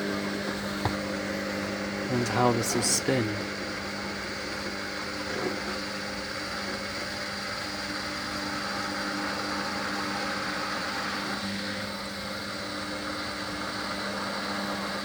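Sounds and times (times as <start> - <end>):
washer dryer drum motor humming: 0.0 - 15.0.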